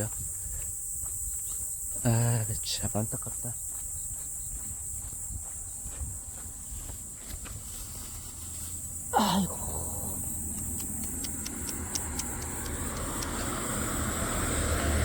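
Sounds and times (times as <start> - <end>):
approaching car road noise: 6.6 - 15.0
man groaning: 9.1 - 10.2
faint ticks: 10.1 - 13.6.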